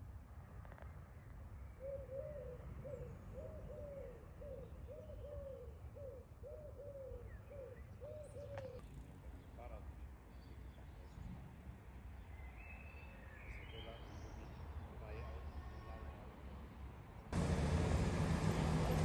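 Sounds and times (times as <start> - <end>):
bird hooting calls: 1.8 - 8.8
distant traffic rumble: 17.3 - 19.0.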